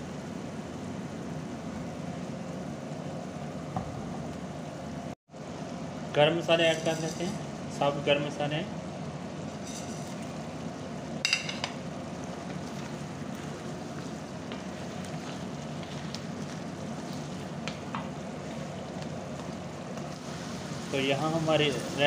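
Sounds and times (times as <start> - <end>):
oil sizzling and bubbling: 0.0 - 22.0
utensil knocking on pan: 11.2 - 11.8.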